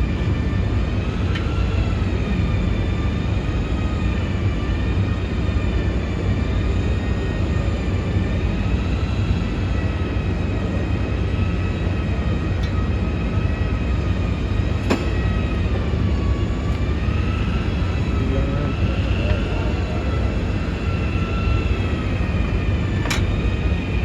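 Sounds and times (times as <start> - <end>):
faint high whines: 0.0 - 24.0
vehicle engine rumbling: 7.8 - 24.0.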